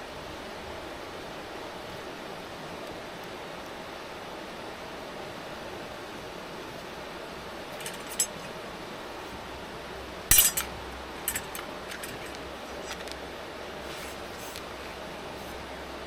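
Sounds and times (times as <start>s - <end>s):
steady hiss: 0.0s - 16.0s
metal cookware clattering: 7.8s - 8.5s, 10.3s - 12.4s.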